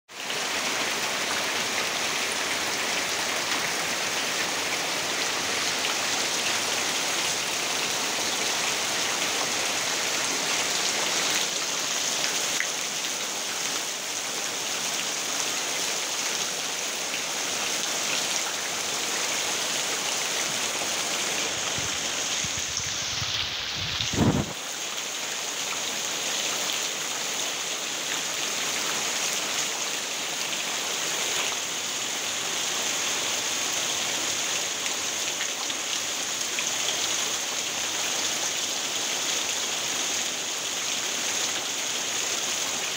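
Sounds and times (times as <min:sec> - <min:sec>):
heavy rain hissing: 0:00.1 - 0:27.6.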